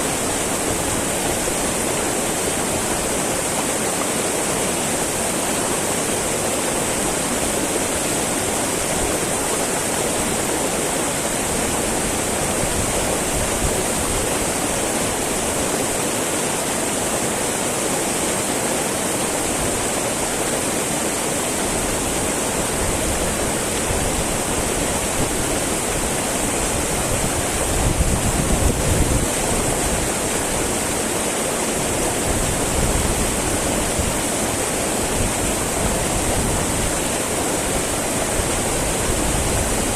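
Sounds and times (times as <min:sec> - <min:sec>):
stream rushing over rocks: 0:00.0 - 0:39.9
wind rumble on microphone: 0:21.8 - 0:30.8, 0:32.0 - 0:39.9.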